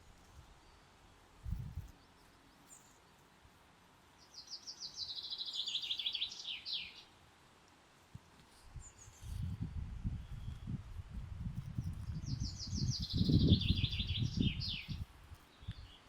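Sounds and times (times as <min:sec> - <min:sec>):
songbird trilling: 0:04.3 - 0:07.1, 0:12.0 - 0:15.0
high bird chirp: 0:11.8 - 0:15.0.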